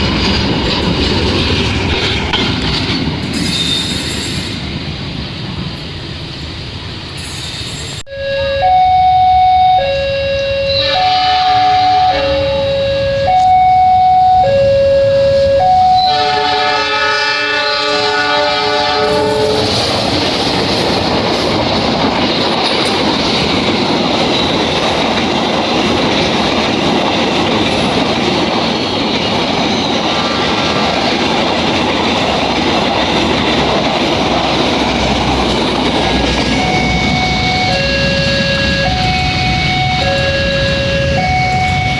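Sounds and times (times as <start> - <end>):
train wheels clattering over rails: 0.0 - 8.0, 18.7 - 41.9
locomotive horn: 8.1 - 19.9, 36.4 - 41.9.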